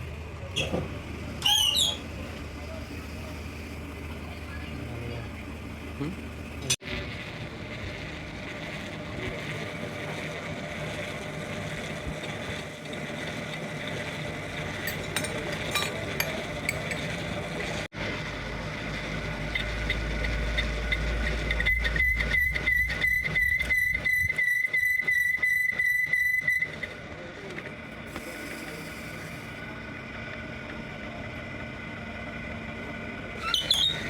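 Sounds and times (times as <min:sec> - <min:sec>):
workshop noise: 0:00.0 - 0:34.0
pulsing high whistling tone: 0:20.6 - 0:26.9.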